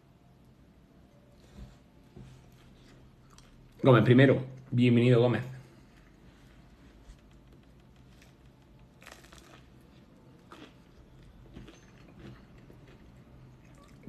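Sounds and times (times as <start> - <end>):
chewing toasted bread: 2.7 - 3.8, 5.6 - 14.0.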